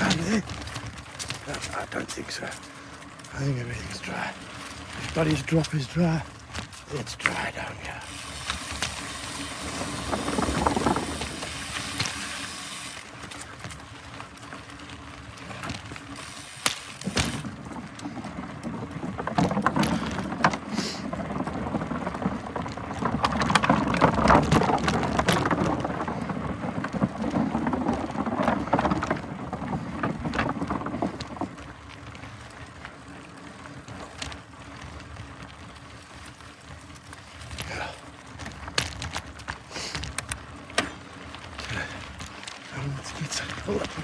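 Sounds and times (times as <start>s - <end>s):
bike rattling and knocking: 0.0s - 44.0s
bike tyres rolling on dirt: 0.0s - 44.0s.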